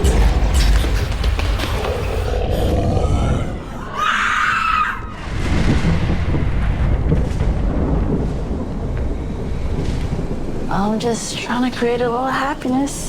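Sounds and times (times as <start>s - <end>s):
low rumbling soundtrack: 0.0s - 13.0s
high scream: 3.8s - 5.2s.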